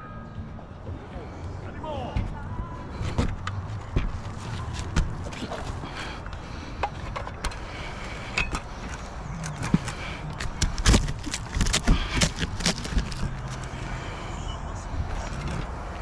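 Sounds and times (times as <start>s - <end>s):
low hum: 7.4s - 15.7s.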